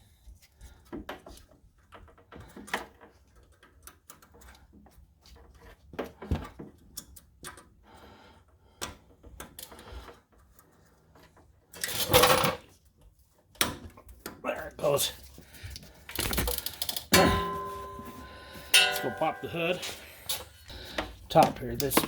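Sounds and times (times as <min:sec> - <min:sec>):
metal parts knocking: 0:16.1 - 0:20.4
clicks of plastic wiring clips: 0:21.4 - 0:22.0.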